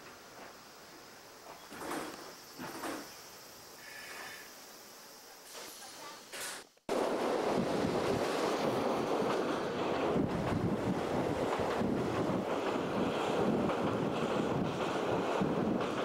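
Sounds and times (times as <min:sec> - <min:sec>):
train coach running noise: 0:05.5 - 0:16.0
wind buffeting microphone: 0:06.9 - 0:16.0.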